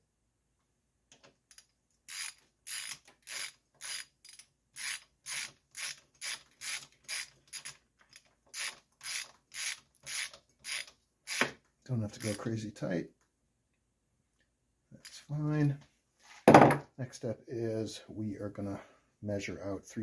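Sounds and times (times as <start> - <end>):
ratchet wrench clicking: 1.5 - 7.8, 8.6 - 11.5.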